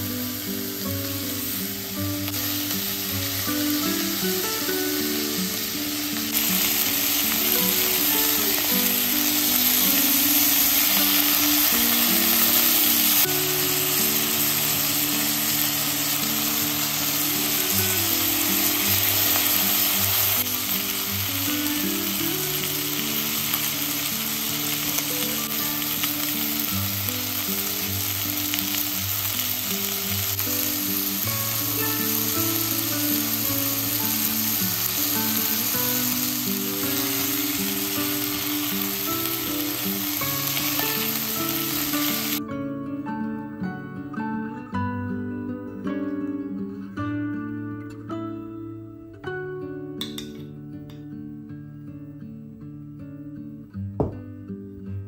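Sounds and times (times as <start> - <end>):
meat sizzling in a pot: 0.0 - 42.4
soft background music: 0.0 - 51.0.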